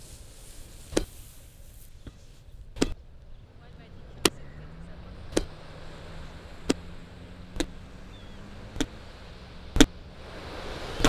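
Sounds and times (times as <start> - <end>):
ball struck with sharp knocks: 2.0 - 3.0, 5.3 - 5.6, 6.6 - 7.9, 8.6 - 9.0, 9.7 - 10.0.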